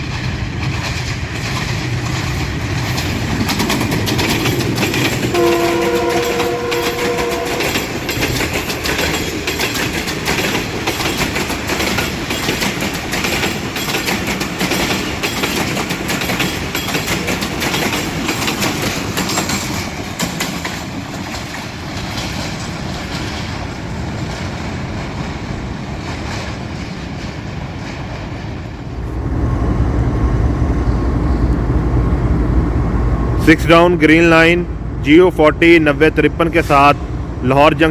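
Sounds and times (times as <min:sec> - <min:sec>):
train wheels clattering over rails: 0:00.0 - 0:29.0
train horn: 0:05.3 - 0:08.0.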